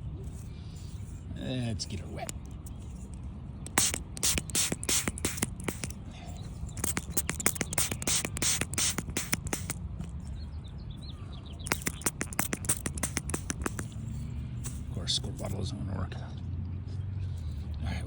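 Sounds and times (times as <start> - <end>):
squirt bottle clicking and spraying: 2.2 - 2.8, 3.6 - 6.0, 6.6 - 10.2, 11.6 - 14.9.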